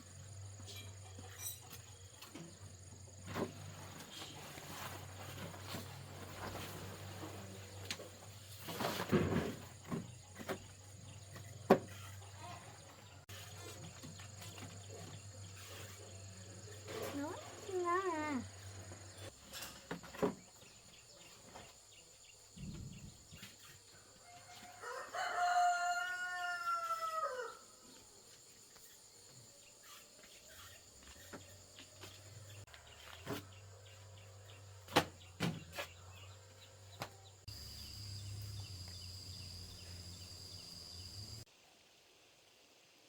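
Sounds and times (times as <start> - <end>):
rooster crowing: 24.2 - 27.8.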